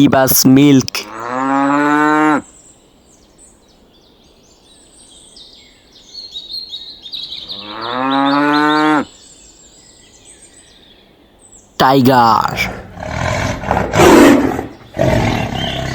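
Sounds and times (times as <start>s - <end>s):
birds chirping: 0.0s - 1.5s, 2.4s - 15.9s
cow mooing: 1.1s - 2.5s, 7.5s - 9.1s.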